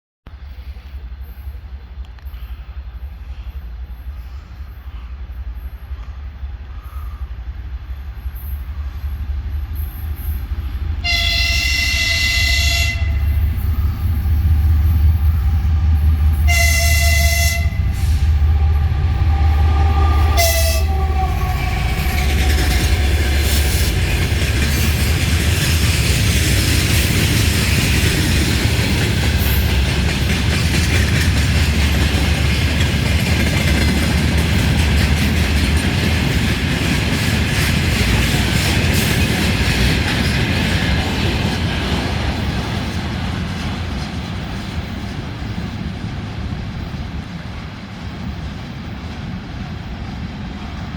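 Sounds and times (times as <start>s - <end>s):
locomotive engine rumble: 6.0s - 40.2s
locomotive air horn blasts: 11.0s - 13.5s, 15.5s - 22.2s.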